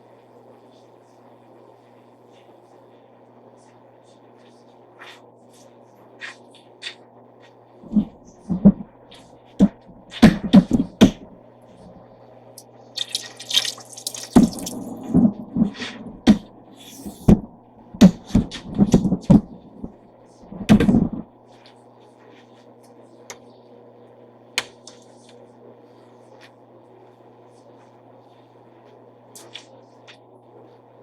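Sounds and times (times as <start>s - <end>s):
steady low hum: 0.0s - 31.0s
running water: 12.9s - 16.3s.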